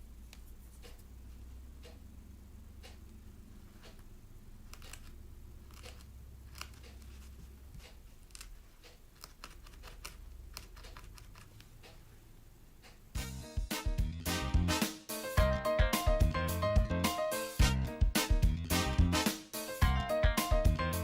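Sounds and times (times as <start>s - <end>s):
low steady hum: 0.0s - 14.8s
light clicks and snips: 3.8s - 12.1s
music: 13.1s - 21.0s.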